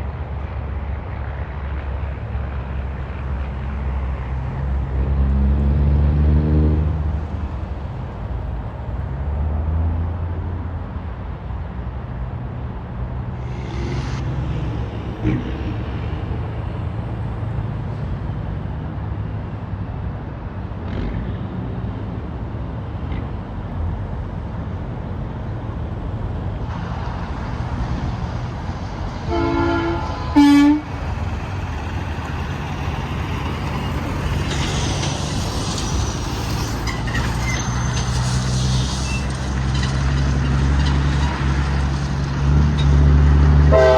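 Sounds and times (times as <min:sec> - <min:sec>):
highway traffic rumble: 0:00.0 - 0:43.9
truck air horn: 0:29.3 - 0:31.0, 0:43.7 - 0:43.9.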